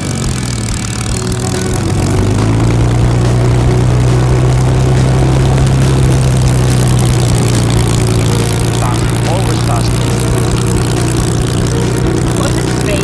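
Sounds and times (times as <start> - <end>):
propeller aircraft engine drone: 0.0 - 13.0.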